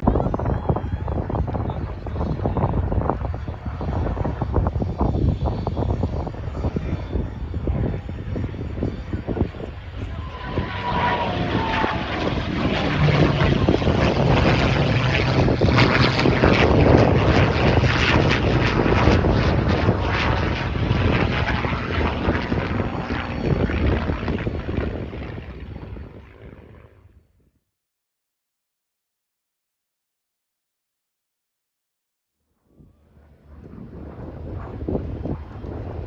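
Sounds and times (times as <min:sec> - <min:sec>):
propeller plane engine drone: 0:00.0 - 0:27.3, 0:32.7 - 0:36.0.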